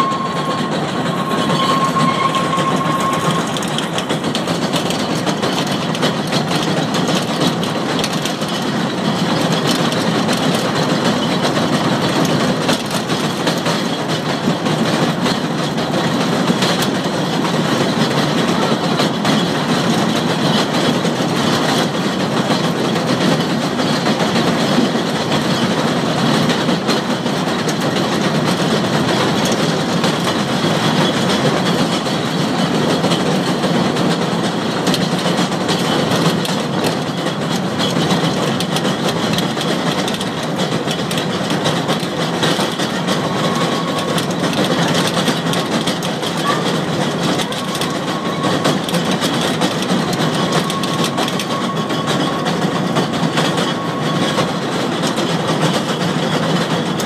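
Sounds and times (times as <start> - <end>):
thin tone: 0.0 - 4.0
train rolling over track: 0.0 - 57.0.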